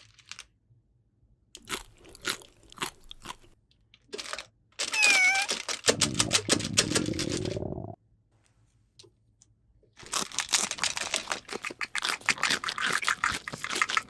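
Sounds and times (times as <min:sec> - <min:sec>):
plastic toy pieces clicking: 0:04.1 - 0:07.5.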